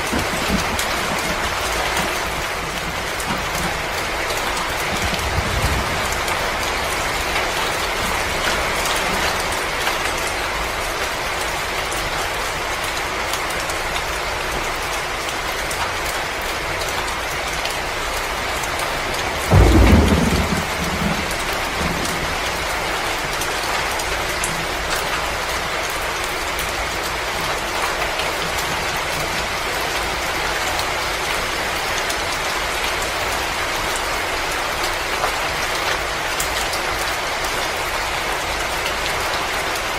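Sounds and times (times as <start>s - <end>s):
low roll of thunder: 0.0s - 9.6s, 18.9s - 23.3s
rain hiss with fine crackles: 0.0s - 39.9s.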